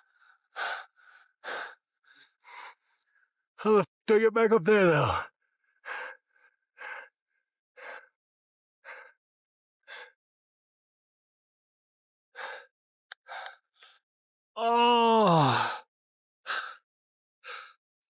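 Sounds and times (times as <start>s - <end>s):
man gasping breaths: 12.4s - 14.0s.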